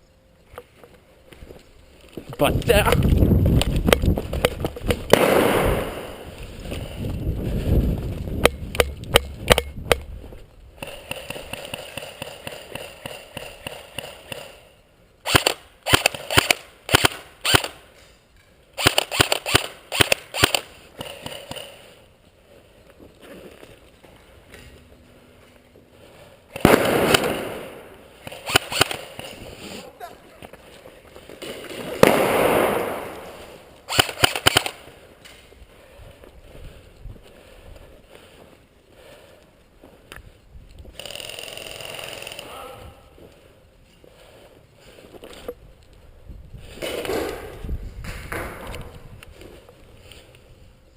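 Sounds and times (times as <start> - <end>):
airsoft guns firing bursts: 10.8 - 14.6, 15.2 - 17.8, 18.8 - 21.8, 26.5 - 29.4, 32.0 - 34.9.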